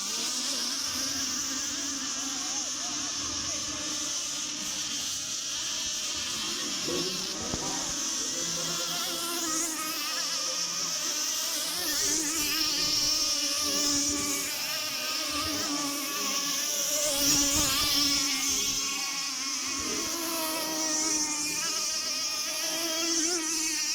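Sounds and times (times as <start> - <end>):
high buzzing model boat engines: 0.0 - 23.9.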